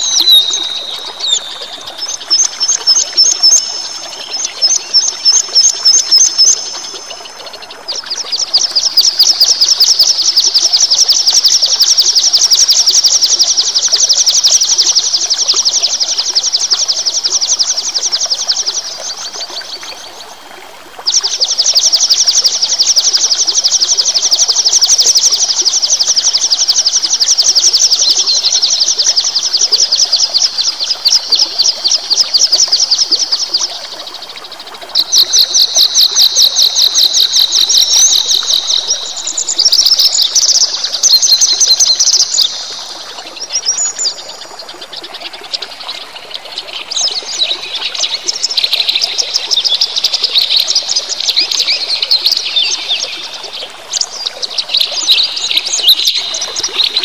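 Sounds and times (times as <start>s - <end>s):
songbird trilling: 0.0s - 7.4s, 35.0s - 44.2s, 46.8s - 57.0s.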